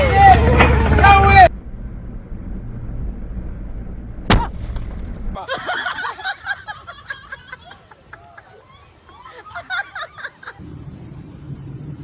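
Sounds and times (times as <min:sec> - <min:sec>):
low rumble of vehicle noise: 0:00.0 - 0:12.0
vehicle collision bang: 0:01.8 - 0:05.4
voices: 0:05.4 - 0:10.6.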